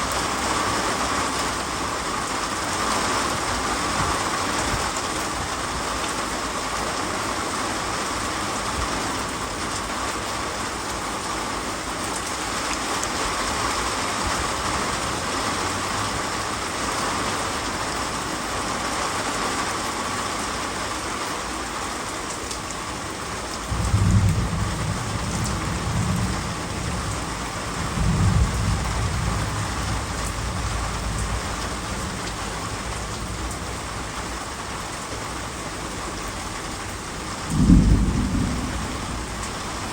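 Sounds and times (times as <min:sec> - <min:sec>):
heavy rain falling: 0:00.0 - 0:39.9
low rolls of thunder: 0:23.7 - 0:39.9.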